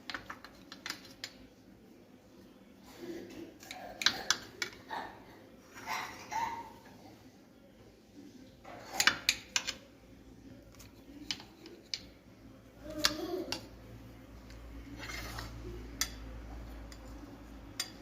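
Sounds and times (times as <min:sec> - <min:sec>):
kitchen utensils and dishes clicking: 0:00.0 - 0:01.4, 0:03.6 - 0:04.9, 0:08.6 - 0:09.9, 0:10.7 - 0:12.2, 0:14.4 - 0:18.0.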